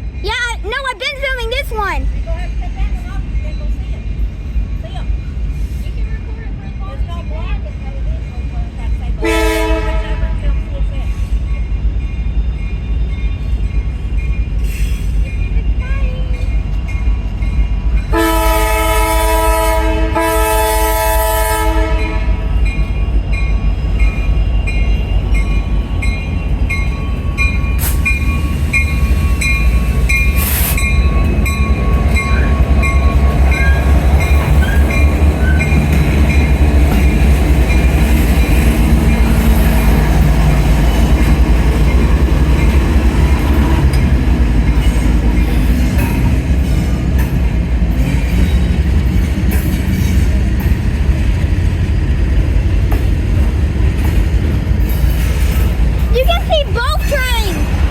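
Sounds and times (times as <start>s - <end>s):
freight train rumbling: 0.0s - 57.9s
locomotive air horn: 9.2s - 10.4s, 18.1s - 22.5s.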